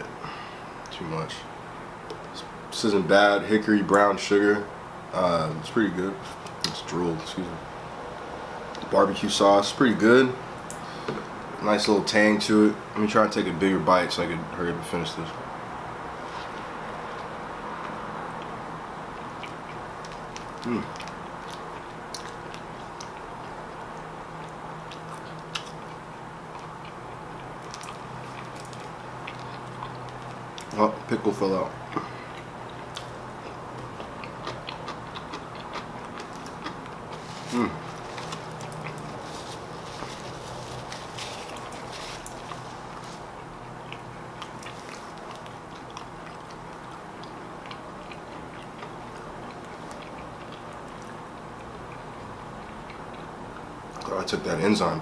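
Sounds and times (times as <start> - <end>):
steady low hum: 0.0 - 55.0
person biting and chewing: 19.4 - 30.7, 31.9 - 51.2.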